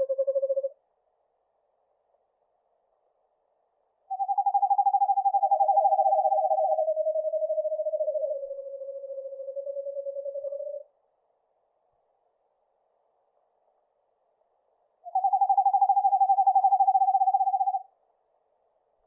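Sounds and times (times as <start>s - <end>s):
owl trilling: 0.0s - 0.8s, 4.1s - 10.9s, 15.0s - 17.9s.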